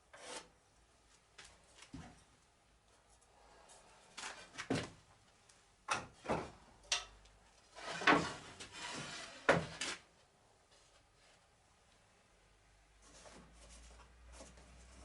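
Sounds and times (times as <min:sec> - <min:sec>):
saw scraping board: 0:00.1 - 0:00.5, 0:07.8 - 0:10.0.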